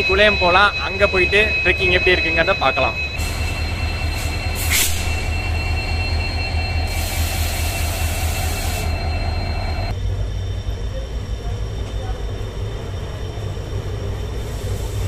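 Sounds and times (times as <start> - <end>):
train rumbling: 0.0 - 15.0
train hiss: 3.2 - 5.5, 6.6 - 9.8, 14.1 - 15.0.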